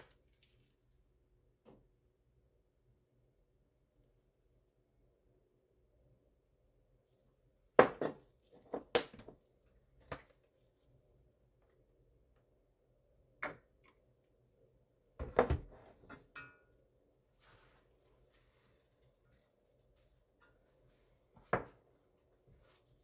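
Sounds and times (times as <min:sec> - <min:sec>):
kitchenware knocking and clinking: 0:15.2 - 0:16.7.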